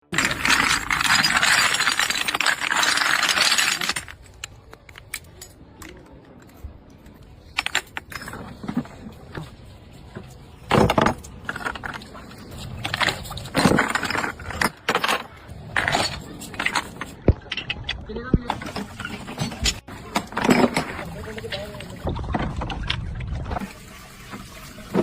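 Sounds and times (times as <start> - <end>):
glass bottles clinking and rattling: 0.0 - 5.7, 7.4 - 23.7.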